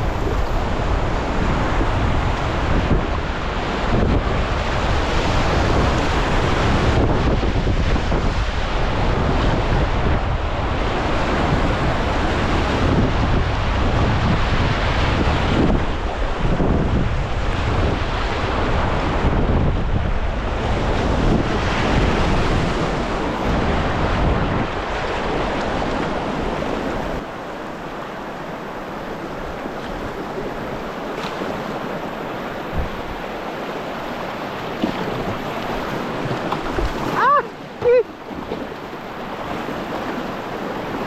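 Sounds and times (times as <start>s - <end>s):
wind buffeting microphone: 0.0s - 41.0s
river whitewater rushing: 20.3s - 41.0s.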